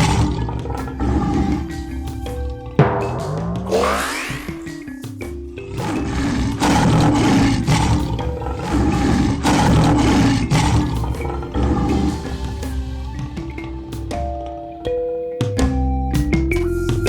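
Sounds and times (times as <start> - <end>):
background music: 0.0 - 17.0
lion roaring: 2.8 - 5.0, 5.6 - 12.5.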